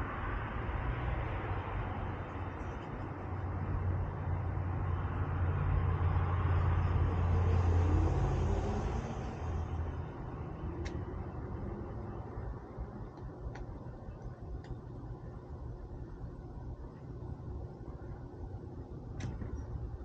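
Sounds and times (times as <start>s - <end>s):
vehicle engine rumble passing: 0.0s - 13.9s.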